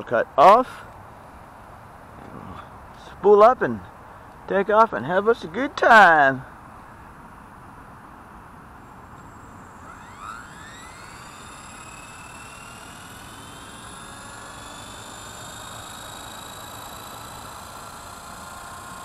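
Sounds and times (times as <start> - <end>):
rc helicopter motor whine: 8.8 - 19.0.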